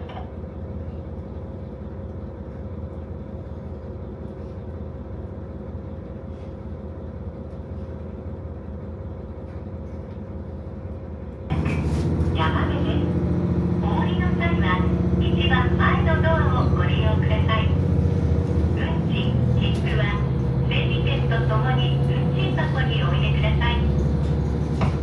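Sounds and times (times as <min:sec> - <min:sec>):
diesel railcar engine idling: 0:00.0 - 0:25.0
engine revving up: 0:11.5 - 0:22.7.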